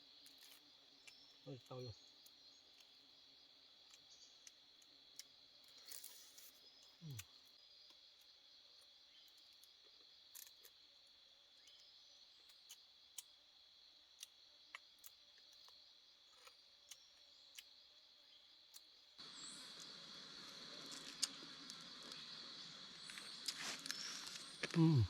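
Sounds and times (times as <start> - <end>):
high-pitched insect drone: 19.2 - 25.0.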